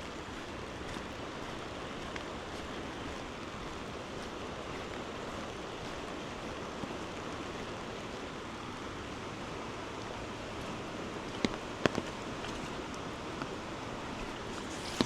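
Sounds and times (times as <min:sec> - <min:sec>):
rain: 0:00.0 - 0:15.0
rushing river water: 0:00.0 - 0:15.0.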